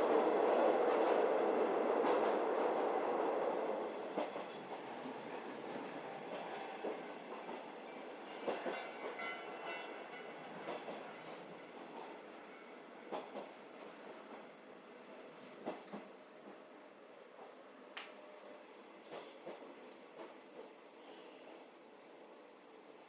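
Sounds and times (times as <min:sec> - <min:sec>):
train rolling rumble: 0:00.0 - 0:17.6
faint train squeal: 0:06.0 - 0:11.5, 0:18.1 - 0:22.6.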